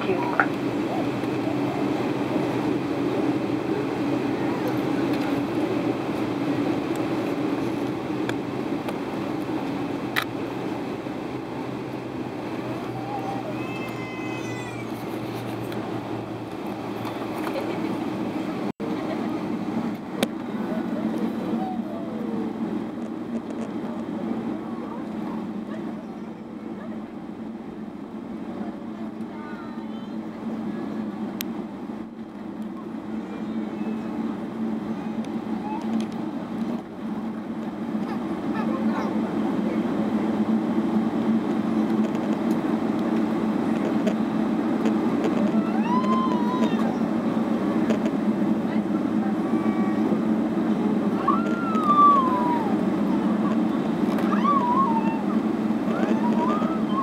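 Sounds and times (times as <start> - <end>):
airplane cabin drone: 0.0 - 57.0.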